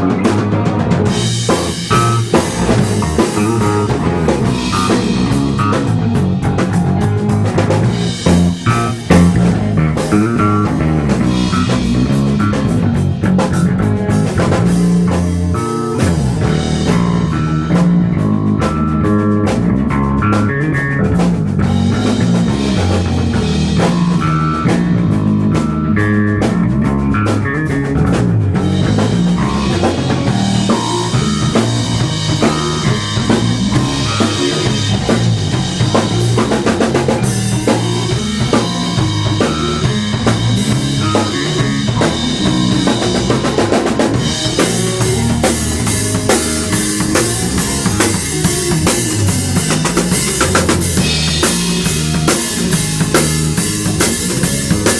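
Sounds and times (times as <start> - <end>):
drum kit beat: 0.0 - 54.9
rock band playing: 0.0 - 54.9.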